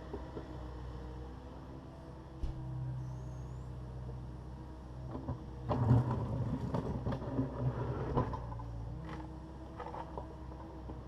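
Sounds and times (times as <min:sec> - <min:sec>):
clattering and scraping of rubble: 0:05.1 - 0:11.0.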